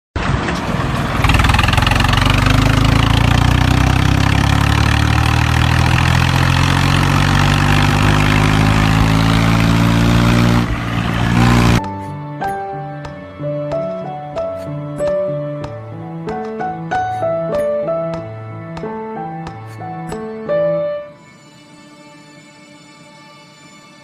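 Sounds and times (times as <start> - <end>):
tractor engine running: 0.2 - 12.0
soft music: 11.8 - 24.0.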